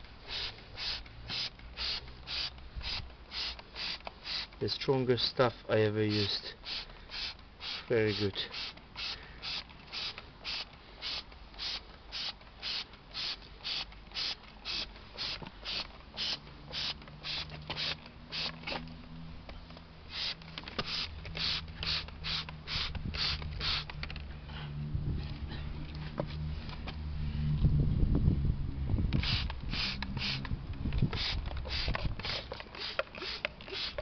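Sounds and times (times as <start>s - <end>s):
spray bottle squirting: 0.2s - 4.6s, 6.1s - 18.9s, 20.1s - 24.0s, 29.2s - 34.0s.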